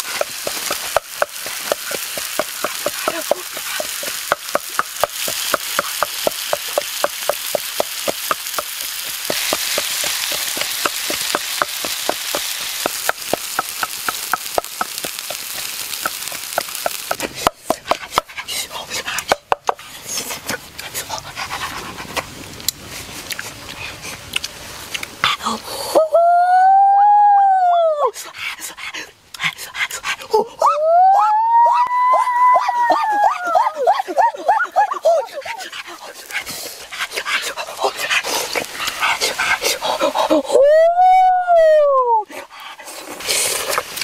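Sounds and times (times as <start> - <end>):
octopus sizzling on hot stone: 0.0 - 25.2, 32.8 - 40.6, 42.3 - 44.0.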